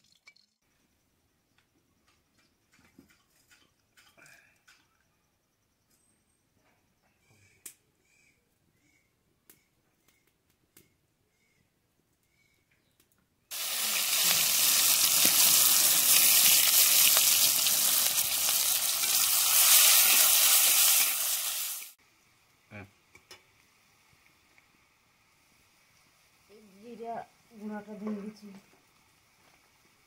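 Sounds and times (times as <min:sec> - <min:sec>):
onions sizzling in hot oil: 0:13.5 - 0:30.0.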